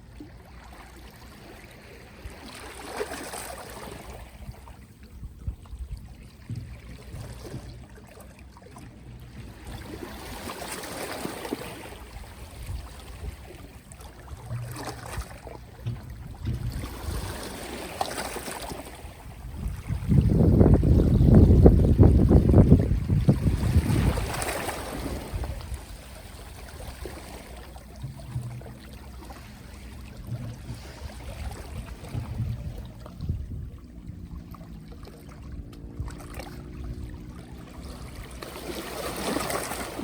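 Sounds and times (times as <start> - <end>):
small waves washing ashore: 0.0 - 40.0
low rumble: 28.1 - 38.1.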